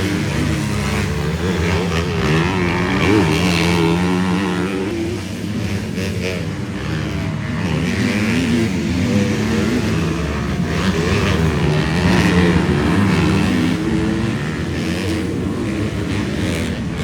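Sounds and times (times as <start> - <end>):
motocross bikes revving: 0.0 - 17.0.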